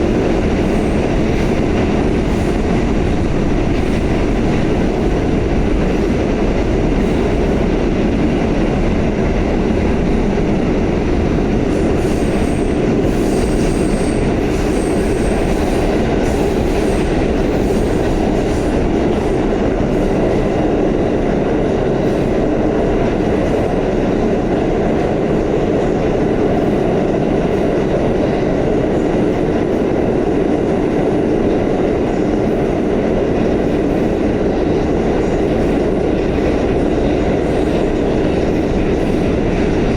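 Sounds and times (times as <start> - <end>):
subway train wheels rumbling: 0.0 - 39.9
high wheel squeals: 11.9 - 18.2.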